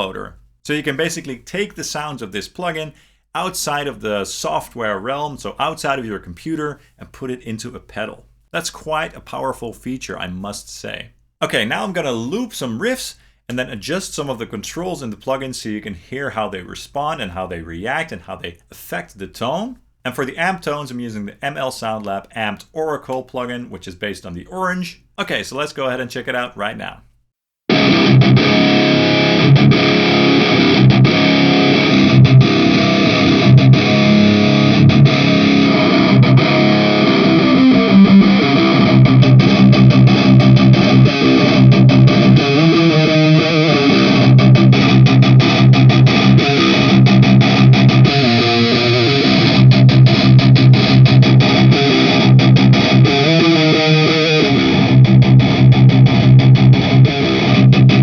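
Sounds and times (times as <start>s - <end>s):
distorted electric guitar riff: 27.7s - 58.0s.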